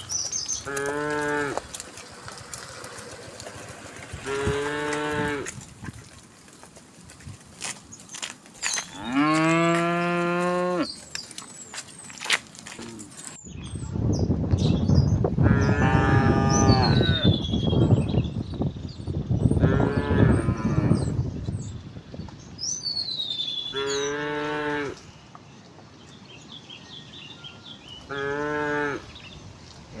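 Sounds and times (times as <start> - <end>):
birds chirping: 0.0 - 5.5, 7.8 - 30.0
cows mooing: 0.6 - 5.6, 8.9 - 11.0, 15.4 - 17.3, 19.6 - 21.1, 23.7 - 25.0, 28.1 - 29.1.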